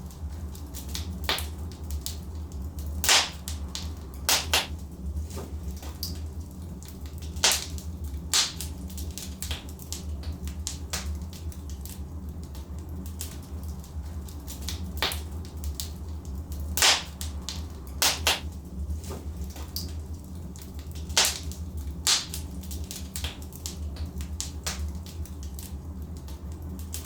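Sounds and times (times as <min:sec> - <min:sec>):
burning logs popping and snapping: 0:00.0 - 0:27.0
low rumble of flames: 0:00.0 - 0:27.0.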